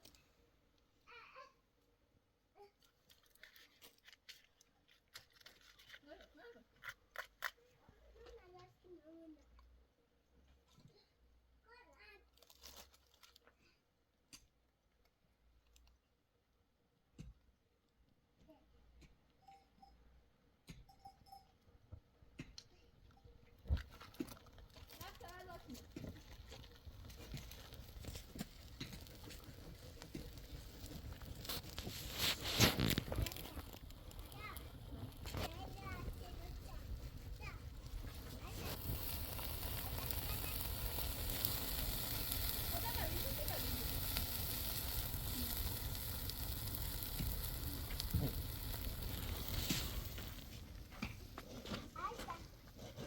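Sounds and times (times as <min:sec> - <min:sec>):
rustling handling noises: 0:02.8 - 0:08.3
small pops: 0:23.6 - 0:53.0
food sizzling on a hot pan: 0:23.8 - 0:53.0
rush of scraping noise: 0:27.1 - 0:53.0.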